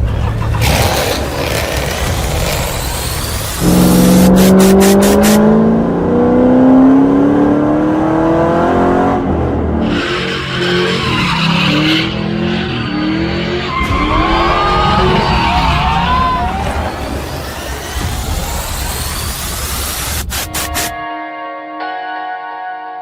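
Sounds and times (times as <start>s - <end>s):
car engine accelerating hard: 0.0s - 20.0s
tyre squeal: 9.8s - 20.0s.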